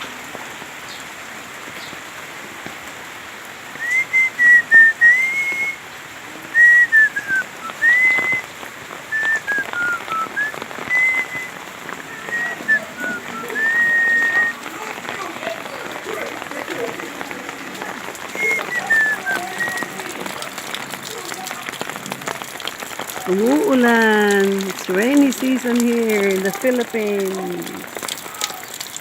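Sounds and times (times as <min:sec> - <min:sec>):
rain falling on surfaces: 0:00.0 - 0:29.0
person whistling a slow tune: 0:03.8 - 0:05.8, 0:06.6 - 0:08.5, 0:09.1 - 0:14.6, 0:18.4 - 0:20.0.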